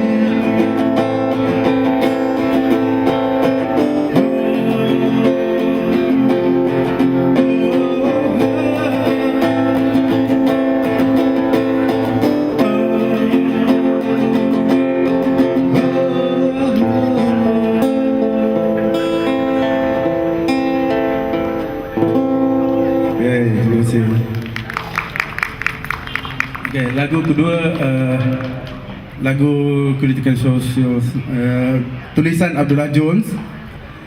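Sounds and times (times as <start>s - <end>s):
acoustic guitar strumming chords: 0.0s - 24.4s.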